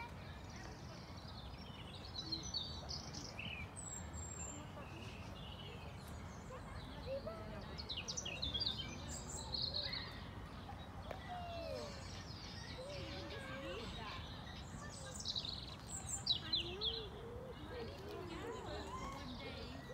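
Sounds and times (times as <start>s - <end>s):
songbirds chirping and trilling: 0.0s - 19.9s.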